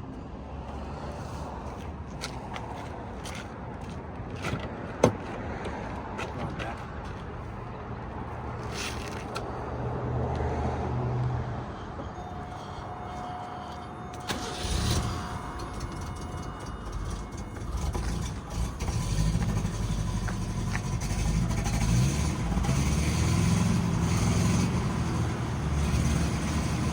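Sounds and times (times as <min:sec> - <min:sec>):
car engine cold start: 0:12.1 - 0:26.9.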